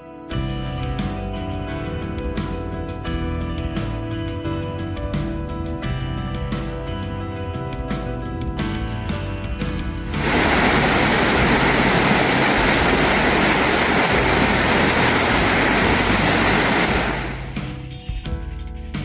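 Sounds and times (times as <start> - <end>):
rushing water: 10.0 - 17.7.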